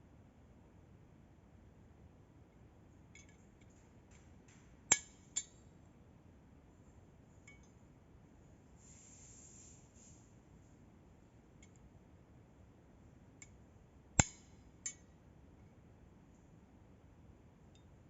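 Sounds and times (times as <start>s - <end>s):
soft hiss: 7.3s - 11.8s.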